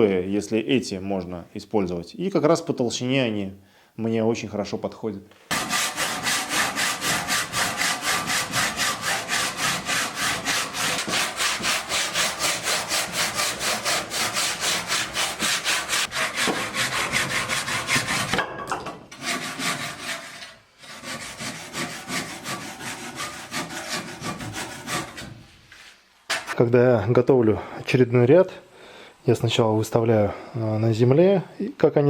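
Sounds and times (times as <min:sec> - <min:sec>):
saw cutting concrete block: 0:05.5 - 0:18.4, 0:19.1 - 0:25.3.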